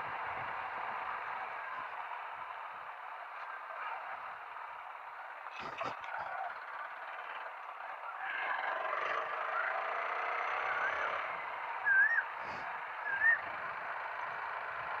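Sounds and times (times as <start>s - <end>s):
warbling bird calls: 8.2s - 13.6s.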